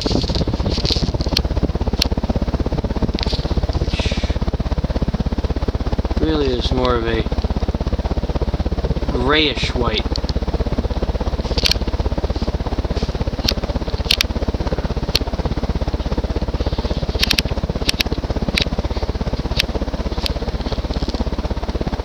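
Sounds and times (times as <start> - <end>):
sharp clicks: 0.0 - 2.2, 3.1 - 4.1, 11.5 - 12.0, 13.1 - 15.4, 16.7 - 21.3
ceiling fan pulsing air: 0.0 - 22.0.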